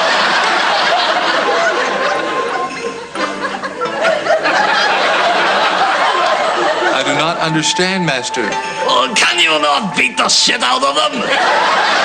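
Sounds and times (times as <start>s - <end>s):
studio audience laughing: 0.0s - 7.5s, 11.1s - 12.0s
music playing: 0.0s - 12.0s.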